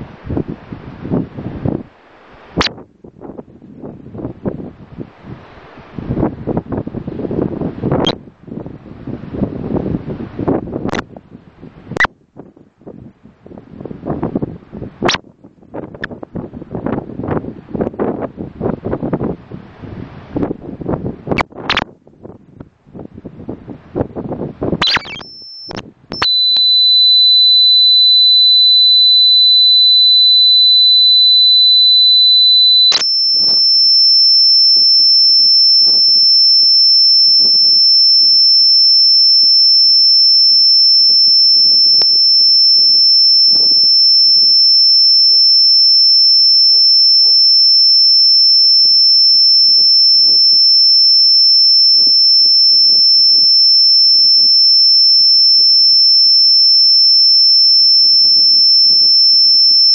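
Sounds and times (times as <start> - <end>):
faint gusty noise: 0.0 - 54.6
high electronic tone: 24.8 - 59.9.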